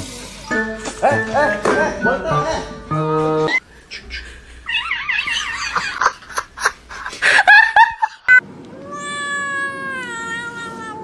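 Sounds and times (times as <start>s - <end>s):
cat meowing: 8.7s - 11.0s.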